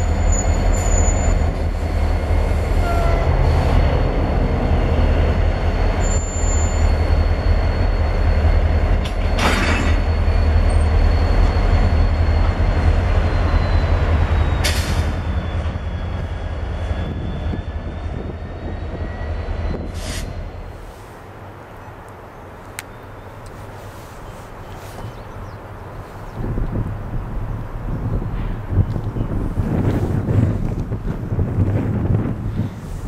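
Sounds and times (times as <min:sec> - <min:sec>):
high wheel squeal: 0:00.0 - 0:01.7, 0:02.7 - 0:08.7, 0:09.3 - 0:20.4
freight train rumbling: 0:00.0 - 0:33.0.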